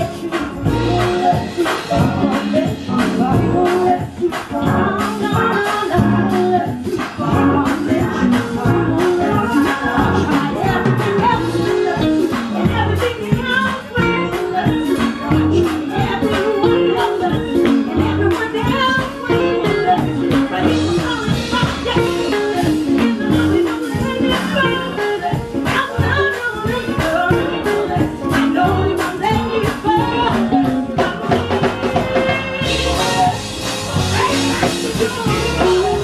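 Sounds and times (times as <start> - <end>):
drums: 0.0 - 36.0
live band music: 0.0 - 36.0
walking bass guitar line: 0.0 - 36.0.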